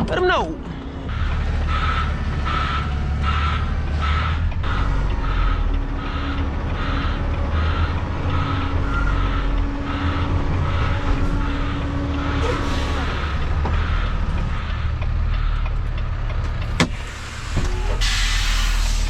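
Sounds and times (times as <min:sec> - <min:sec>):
diesel truck engine running: 0:00.0 - 0:19.0
backup alarm beeping: 0:16.6 - 0:18.8.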